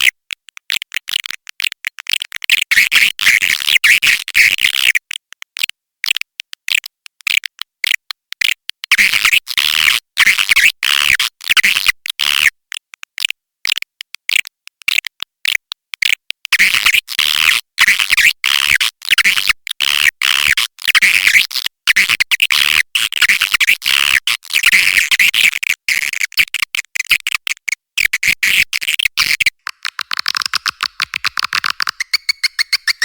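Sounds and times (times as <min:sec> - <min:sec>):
swiftlet twittering chirps: 0:29.6 - 0:33.0.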